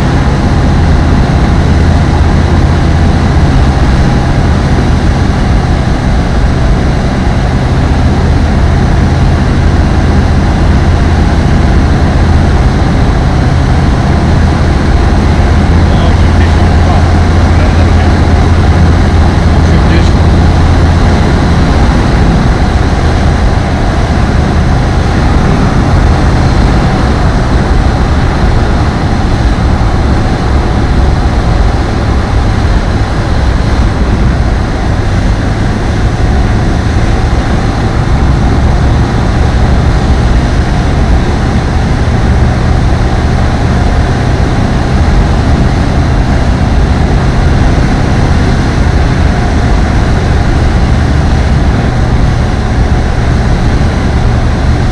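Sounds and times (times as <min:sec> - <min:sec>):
aircraft engine and propeller drone: 0:00.0 - 0:54.9.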